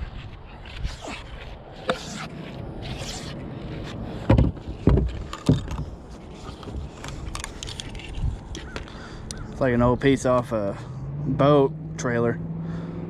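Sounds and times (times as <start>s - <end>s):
heavy knocks against a boat: 4.2s - 5.8s.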